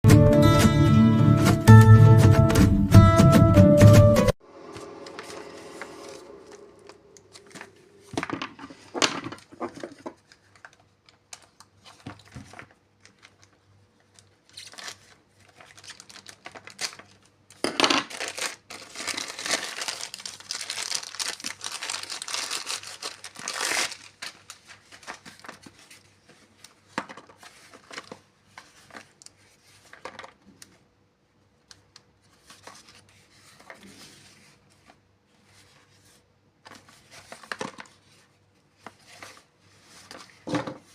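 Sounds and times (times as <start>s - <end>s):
packaging tearing and crinkling: 8.8s - 25.8s.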